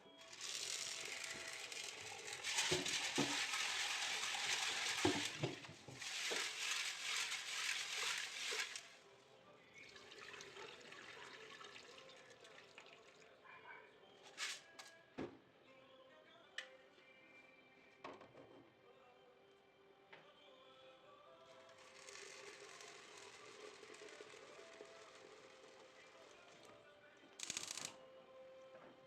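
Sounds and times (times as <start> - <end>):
tap water running into sink: 0.3 - 9.0.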